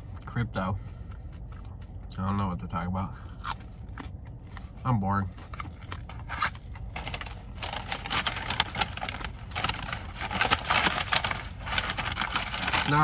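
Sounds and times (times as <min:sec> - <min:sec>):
chewing food: 0:00.1 - 0:02.4, 0:03.2 - 0:09.3.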